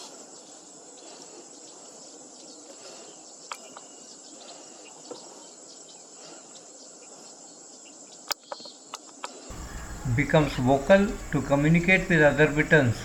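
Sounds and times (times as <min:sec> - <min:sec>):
high-pitched insect chorus: 0:09.5 - 0:13.0.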